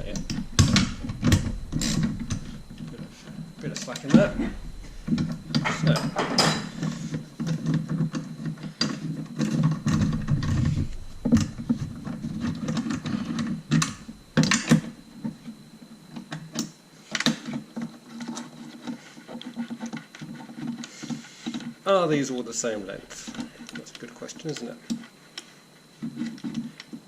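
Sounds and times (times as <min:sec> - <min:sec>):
sharp knocks: 0:00.0 - 0:07.5.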